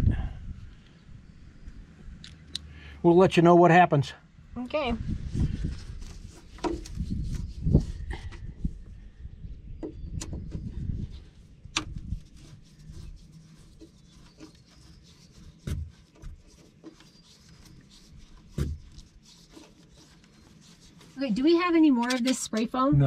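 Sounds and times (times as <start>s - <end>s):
hand tool scraping foam: 5.6s - 8.2s, 11.1s - 22.8s.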